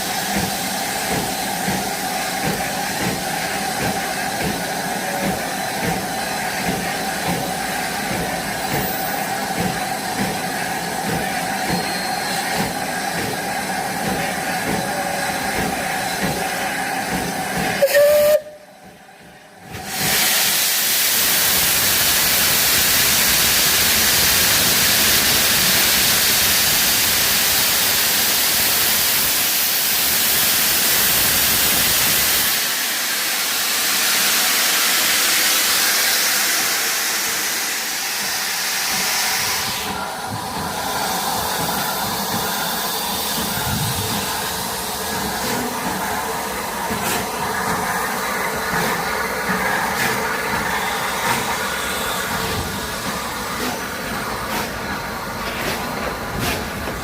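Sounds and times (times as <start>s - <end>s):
train carriages rolling: 0.0s - 20.3s, 39.5s - 57.0s
steam locomotive hissing: 0.0s - 57.0s.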